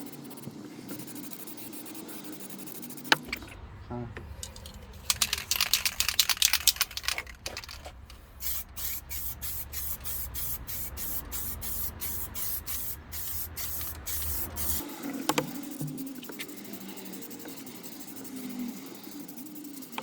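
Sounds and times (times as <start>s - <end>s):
spray can rattling: 4.4s - 14.8s
short hissing spray bursts: 8.4s - 14.9s.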